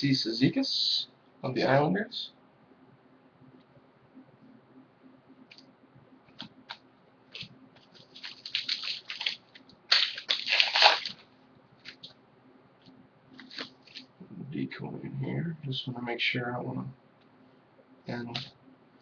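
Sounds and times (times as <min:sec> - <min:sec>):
foil wrapper crinkling and tearing: 0:07.4 - 0:12.1, 0:13.4 - 0:14.1.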